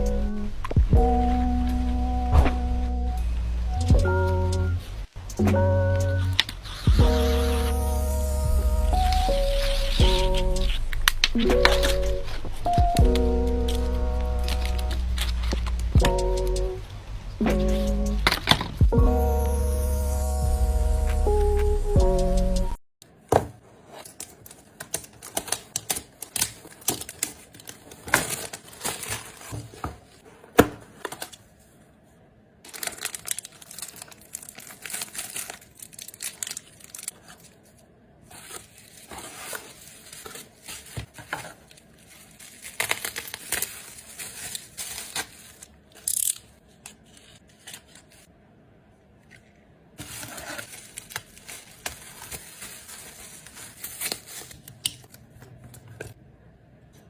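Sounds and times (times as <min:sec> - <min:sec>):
packaging crinkling and tearing: 0:13.6 - 0:15.9, 0:23.9 - 0:30.2, 0:32.7 - 0:48.3, 0:50.0 - 0:56.1.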